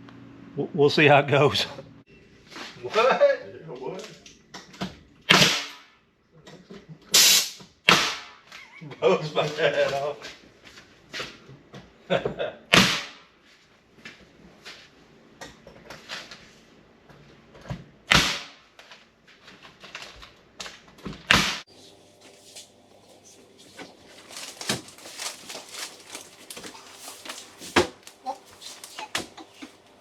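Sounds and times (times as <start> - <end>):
nail gun shots: 5.3 - 5.8, 12.7 - 13.2, 18.1 - 18.6
knocks and clicks of boards: 22.5 - 29.9.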